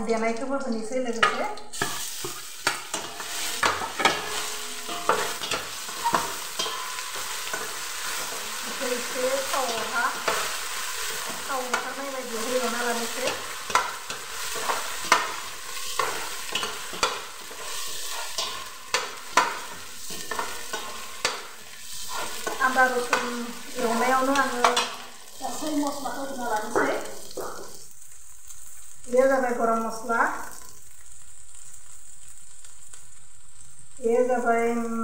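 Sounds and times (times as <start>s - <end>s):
spices sizzling in oil: 0.0s - 35.0s
metal spoon scraping a pot: 1.2s - 25.0s.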